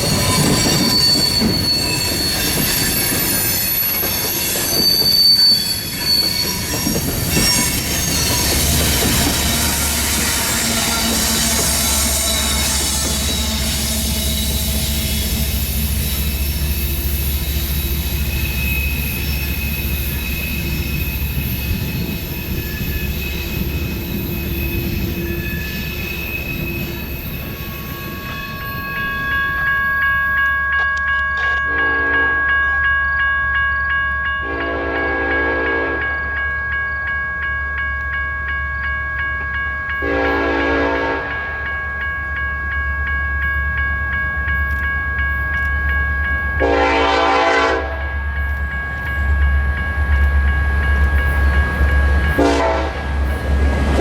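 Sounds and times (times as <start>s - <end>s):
high-pitched squealing: 0.0s - 29.7s
freight train rail noise: 0.0s - 54.0s
locomotive air horn blasts: 31.7s - 32.4s, 34.4s - 36.0s, 40.0s - 41.3s, 46.6s - 48.0s, 52.4s - 53.0s.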